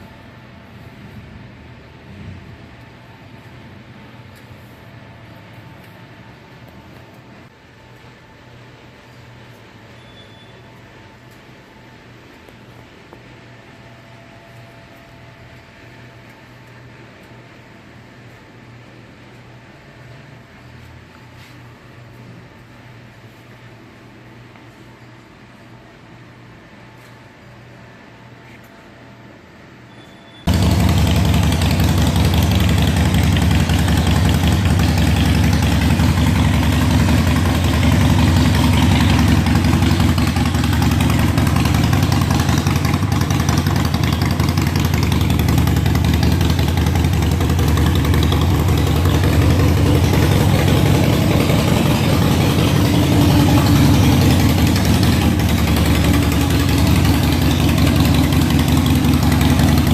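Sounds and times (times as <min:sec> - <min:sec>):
motorcycle engine idling: 0:30.5 - 0:59.9.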